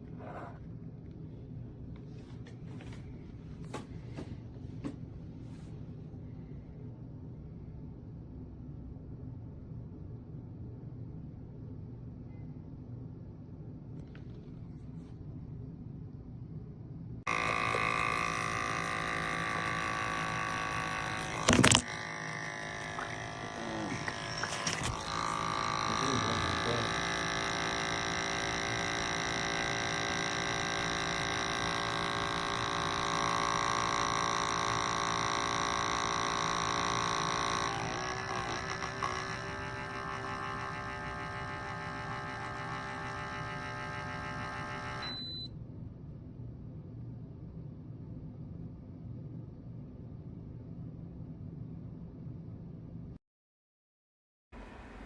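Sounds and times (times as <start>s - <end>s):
espresso machine pump humming: 17.3s - 45.5s.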